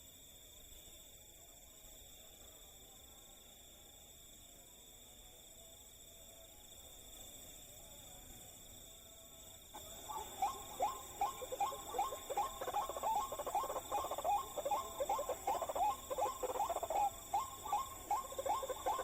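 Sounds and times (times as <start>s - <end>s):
waterhen croaking call: 10.0s - 19.0s.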